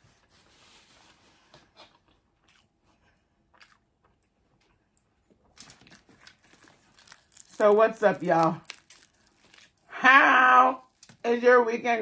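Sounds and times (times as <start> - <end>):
faint crunchy chewing: 1.8 - 10.0, 10.8 - 11.3.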